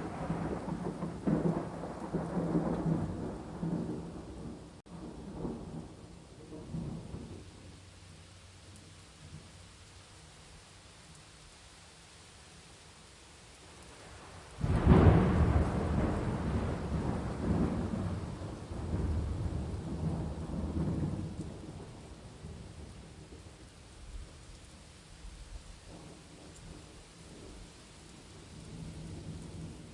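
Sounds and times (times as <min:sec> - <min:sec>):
thunder clap and rumble: 0:00.0 - 0:07.5, 0:14.6 - 0:23.5
rain hiss: 0:00.0 - 0:29.9.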